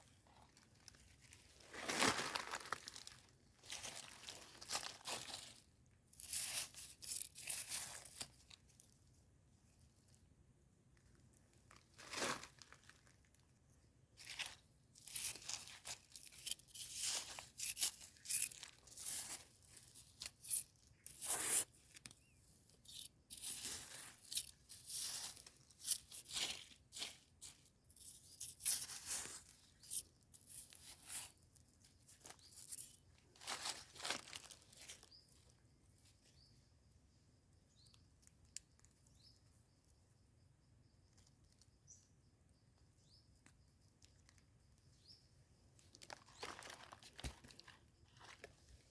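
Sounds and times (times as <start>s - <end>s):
hands scraping through soil: 3.7s - 8.7s, 14.2s - 35.4s.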